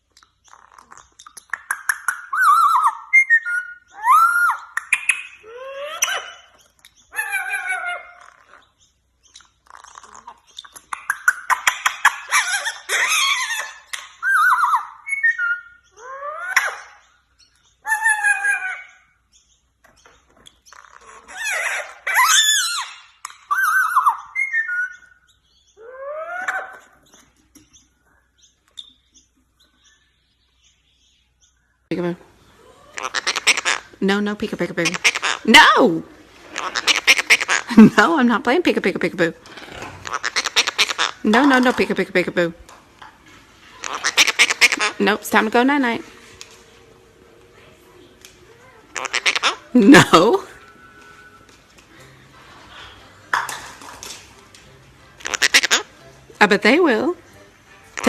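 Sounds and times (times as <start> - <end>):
parrot clicking chattering calls: 0.0 - 8.7, 9.3 - 17.0, 32.9 - 34.0, 34.7 - 35.8, 36.5 - 37.8, 40.0 - 41.9, 43.8 - 45.2, 48.9 - 50.1, 55.2 - 55.9
parrot whistling and squawking: 0.3 - 19.2, 20.6 - 27.2, 32.5 - 38.1, 39.7 - 42.0, 43.7 - 46.0, 48.9 - 51.6, 55.2 - 55.9.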